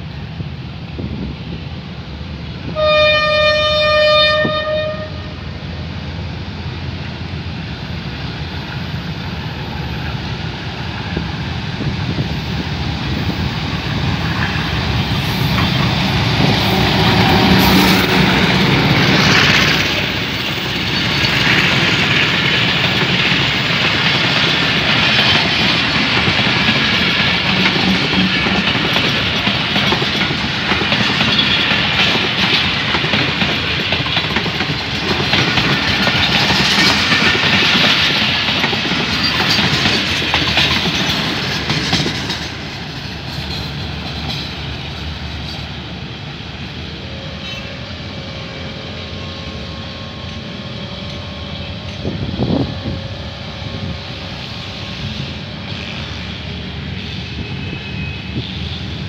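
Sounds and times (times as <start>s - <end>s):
diesel locomotive engine passing: 0.0s - 59.0s
train wheels clacking over rail joints: 10.9s - 45.8s.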